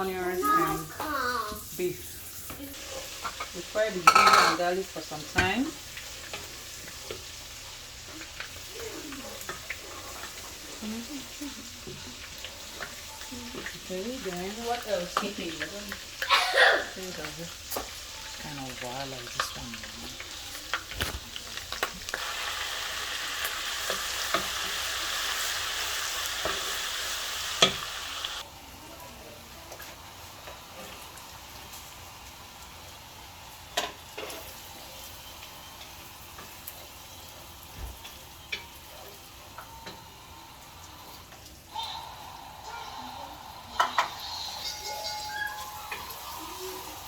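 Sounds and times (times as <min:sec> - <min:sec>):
food sizzling in hot oil: 0:00.0 - 0:47.0
utensil knocking against pan: 0:04.0 - 0:04.6.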